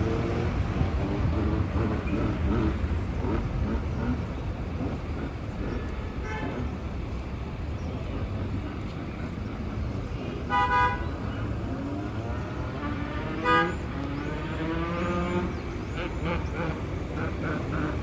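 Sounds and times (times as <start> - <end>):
traffic and engine rumble: 0.0 - 18.0
vehicle horn toots: 5.8 - 6.6, 10.5 - 11.1, 12.8 - 13.9.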